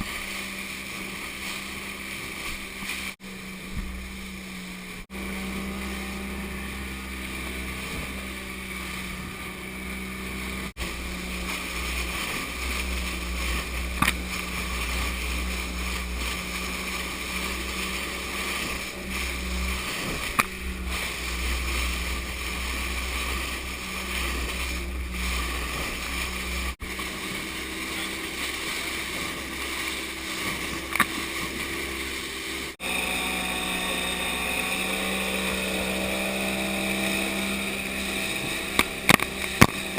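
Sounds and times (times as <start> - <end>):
motorboat engine drone: 0.0 - 39.9
wind and water noise: 0.0 - 39.9.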